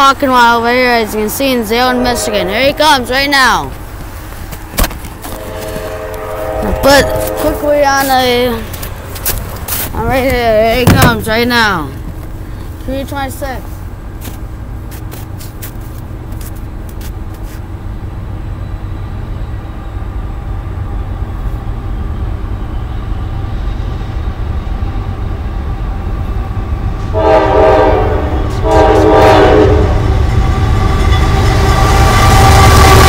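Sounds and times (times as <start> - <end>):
diesel locomotive rumble: 0.0 - 33.0
train horn blasts: 1.7 - 3.1, 5.2 - 9.6, 27.1 - 33.0.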